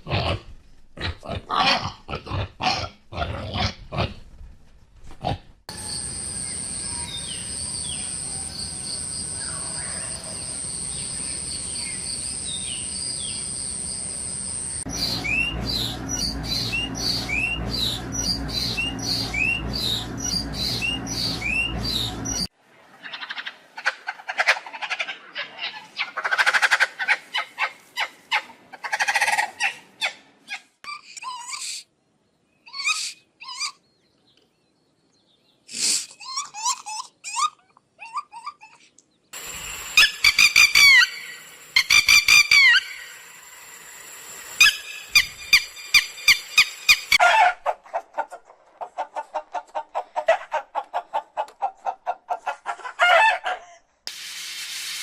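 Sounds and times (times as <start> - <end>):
steady high whine: 13.6 - 22.5, 39.4 - 47.2
birds chirping and chattering: 14.7 - 22.5.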